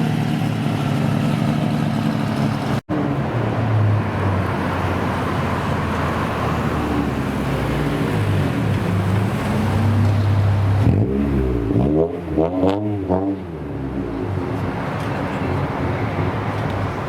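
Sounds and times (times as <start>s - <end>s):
car engine idling and revving: 0.0s - 17.0s
traffic rumble: 0.0s - 17.0s.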